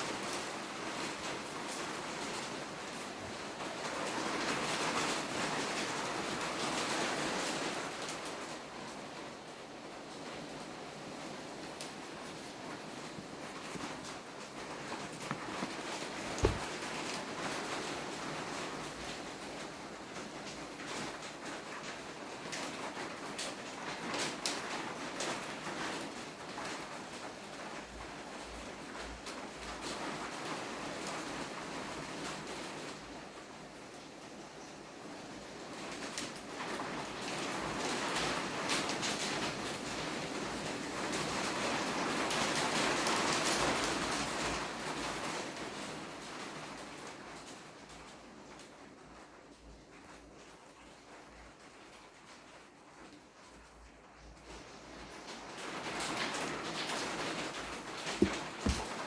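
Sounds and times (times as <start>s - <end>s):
packaging rustling and sliding: 12.0s - 17.0s, 58.1s - 59.0s
light clicks and taps: 58.1s - 59.0s.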